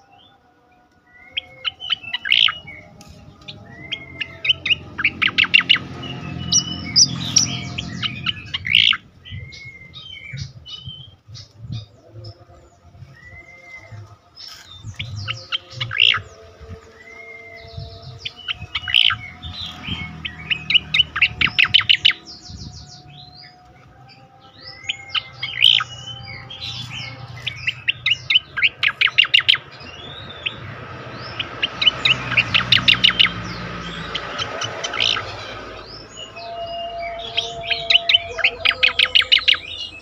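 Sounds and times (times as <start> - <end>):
bird singing chirps and whistles: 1.0 - 40.0
rapid runs of sharp bird notes: 24.7 - 40.0.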